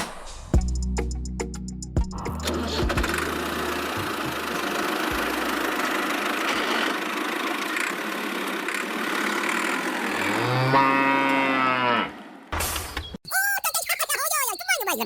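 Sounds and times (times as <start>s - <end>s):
small vehicle motor running: 2.4s - 12.5s.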